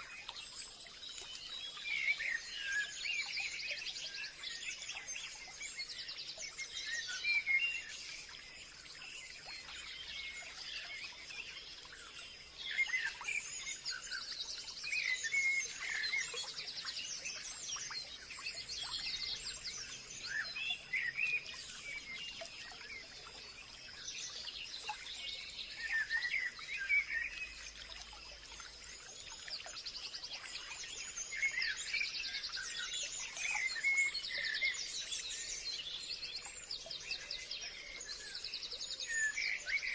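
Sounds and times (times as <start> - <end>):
birds chirping and trilling: 9.2 - 27.8.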